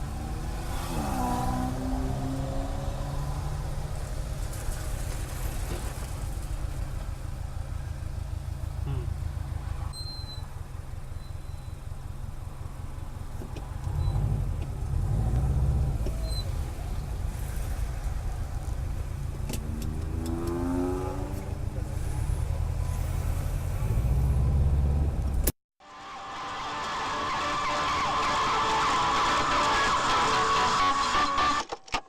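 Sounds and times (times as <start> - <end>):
car engine and road noise: 0.0 - 31.7.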